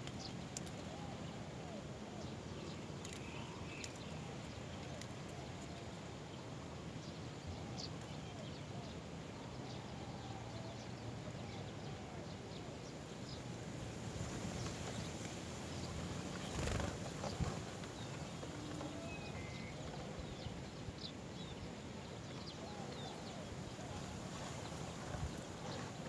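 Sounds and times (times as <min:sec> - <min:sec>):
rustle: 0:00.0 - 0:26.0.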